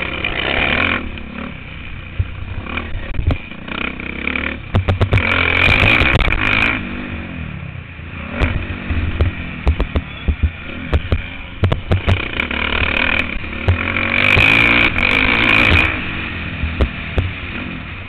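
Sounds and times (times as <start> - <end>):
motocross bike engine: 0.0 - 18.0
sharp knocks and rattles: 4.6 - 6.6, 8.4 - 16.0.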